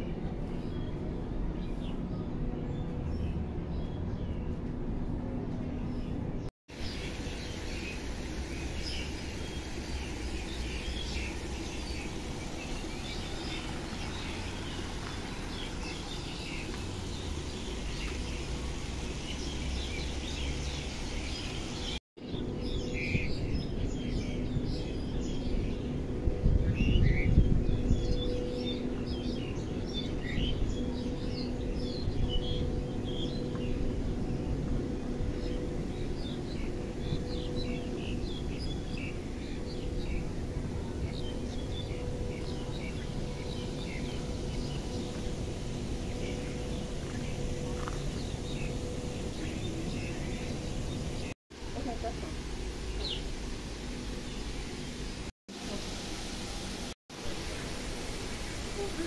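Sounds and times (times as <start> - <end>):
outdoor background hum: 0.0 - 59.0
small birds chirping: 5.8 - 25.9, 35.4 - 59.0.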